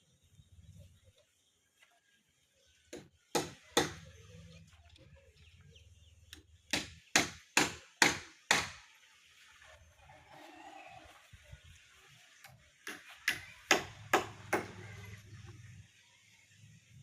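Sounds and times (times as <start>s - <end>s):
hammer striking wooden timber: 2.9s - 4.1s, 6.7s - 8.8s, 12.8s - 14.8s.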